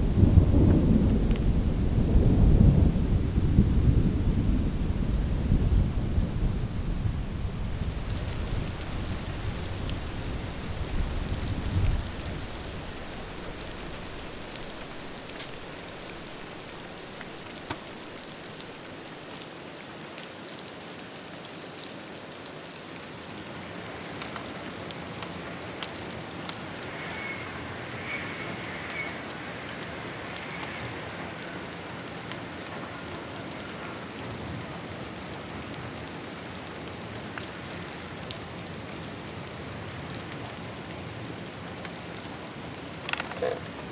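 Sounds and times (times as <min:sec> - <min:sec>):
thunder rumble: 0:00.0 - 0:18.8
rain pattering: 0:00.0 - 0:43.9.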